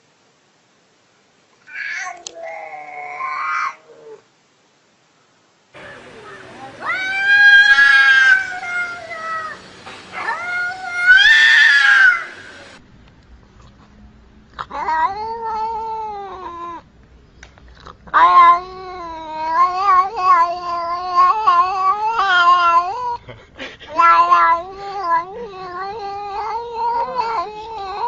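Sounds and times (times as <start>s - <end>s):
cats yowling: 1.7s - 4.2s, 5.8s - 12.8s, 14.6s - 16.8s, 18.1s - 23.2s, 23.9s - 28.0s.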